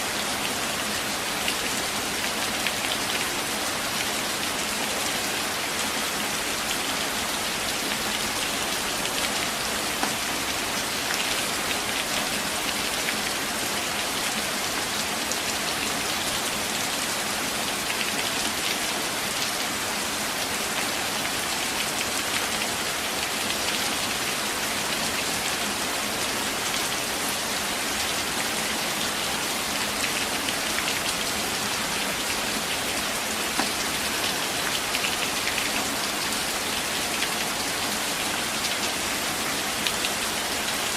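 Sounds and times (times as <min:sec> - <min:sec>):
rain falling on leaves: 0:00.0 - 0:40.9.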